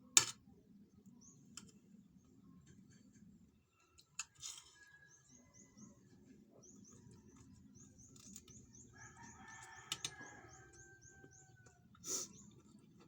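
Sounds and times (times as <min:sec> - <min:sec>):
faint rooster crowing: 0:04.5 - 0:07.6, 0:08.3 - 0:12.1.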